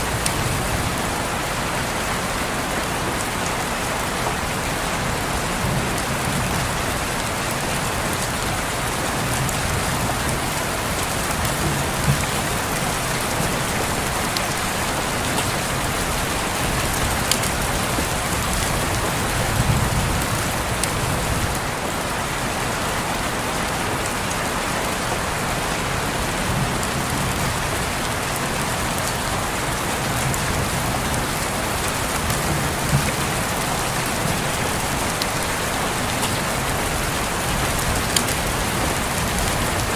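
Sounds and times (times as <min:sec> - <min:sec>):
rain pattering on window: 0:00.0 - 0:39.9.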